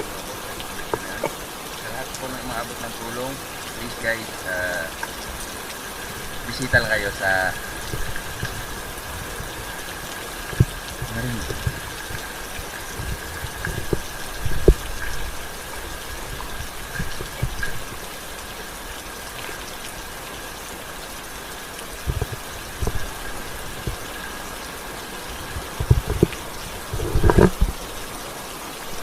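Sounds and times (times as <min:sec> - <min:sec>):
steady rain hiss: 0:00.0 - 0:29.0
dull low thumps and knocks: 0:10.5 - 0:15.4, 0:25.5 - 0:27.8.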